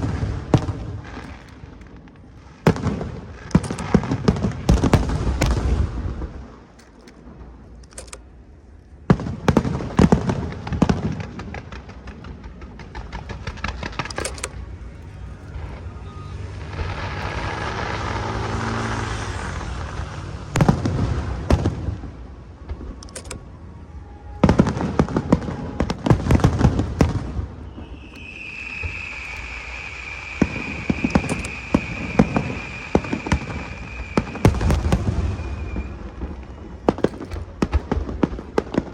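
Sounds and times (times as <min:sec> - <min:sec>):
fireworks bangs and crackles: 0:00.0 - 0:07.7, 0:09.0 - 0:38.9
steady high whistle: 0:15.1 - 0:17.5, 0:27.5 - 0:36.9.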